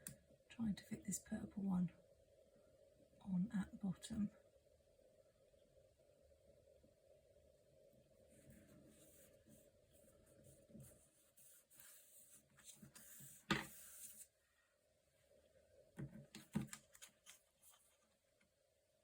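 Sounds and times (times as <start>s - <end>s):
sticker paper rustling: 16.4s - 18.2s.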